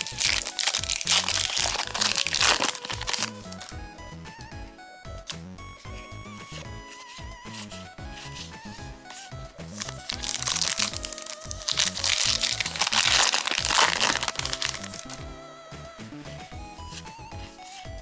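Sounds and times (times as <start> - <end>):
foil wrapper crinkling and tearing: 0.0 - 3.8, 5.9 - 15.3
background music: 0.0 - 18.0.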